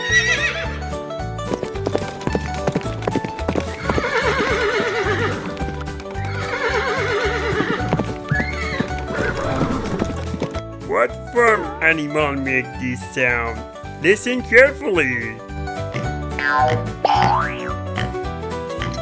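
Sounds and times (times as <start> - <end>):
horse whinnying: 0.0 - 0.8, 3.8 - 5.5, 6.2 - 10.1
background music: 0.0 - 19.0
hoofbeats clip-clopping: 1.5 - 12.4.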